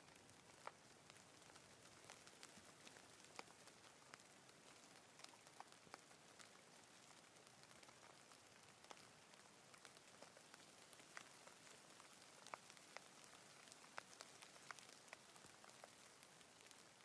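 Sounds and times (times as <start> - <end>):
faint rain hiss: 0.0 - 17.0
raindrops ticking: 0.0 - 17.0.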